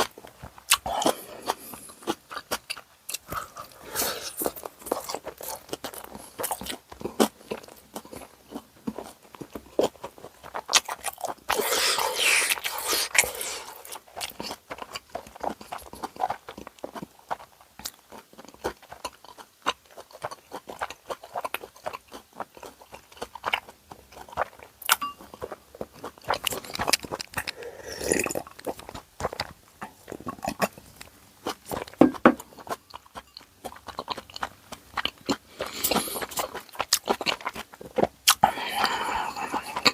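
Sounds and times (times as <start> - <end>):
chewing and crunchy biting: 0.0 - 39.9
wet mouth clicks: 24.3 - 31.1.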